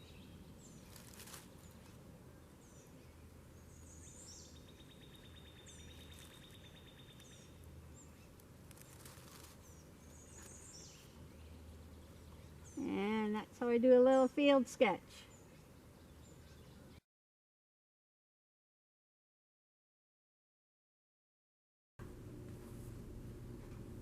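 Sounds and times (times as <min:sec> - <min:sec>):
low background hum: 0:00.0 - 0:17.0, 0:22.0 - 0:24.0.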